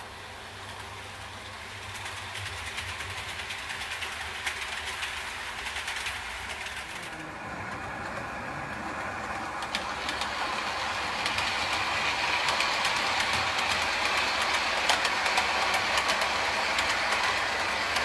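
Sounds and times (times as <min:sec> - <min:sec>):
model train wheels on rail: 0:00.0 - 0:18.0
sharp track clicks: 0:09.2 - 0:18.0.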